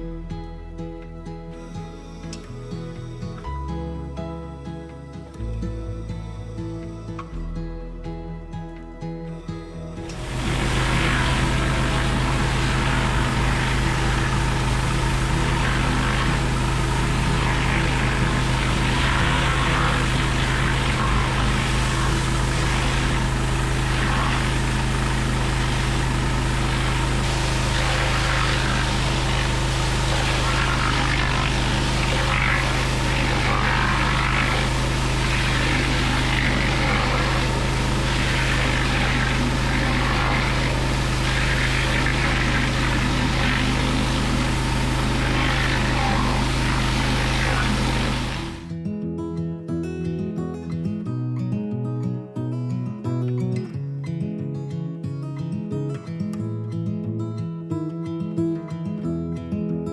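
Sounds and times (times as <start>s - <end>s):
pressure washer motor drone: 10.0s - 48.7s
high-pressure water spraying on stone: 10.1s - 48.7s.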